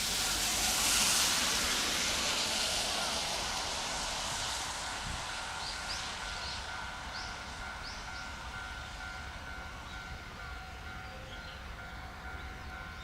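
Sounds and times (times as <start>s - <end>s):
broad rushing noise: 0.0s - 7.7s.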